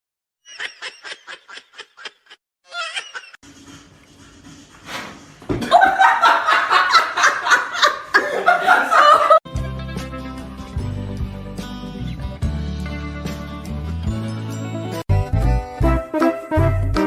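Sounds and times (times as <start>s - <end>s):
person laughing hard: 0.5s - 3.4s, 5.6s - 9.4s
music: 9.5s - 17.0s.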